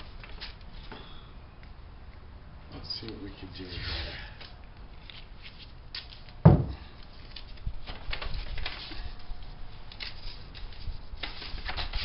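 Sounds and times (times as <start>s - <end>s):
tape and plastic rustling: 0.0s - 1.0s, 4.4s - 12.0s
sharp knock: 6.5s - 6.8s.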